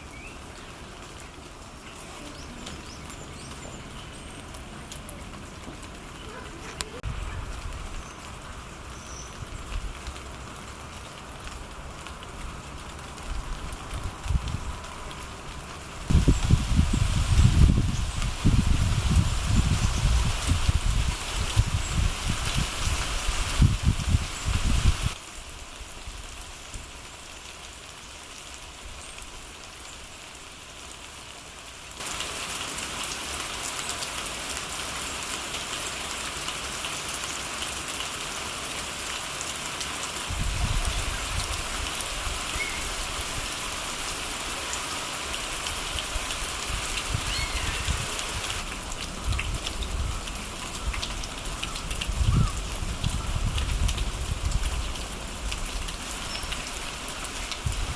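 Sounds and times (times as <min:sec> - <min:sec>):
rain falling: 0:00.0 - 0:57.9.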